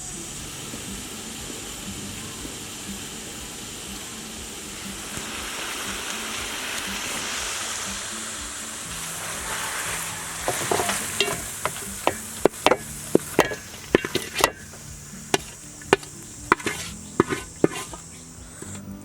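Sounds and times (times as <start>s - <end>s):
food sizzling in pan: 0.0s - 19.0s
metal spatula clacking on pan: 10.4s - 14.7s, 15.3s - 18.0s.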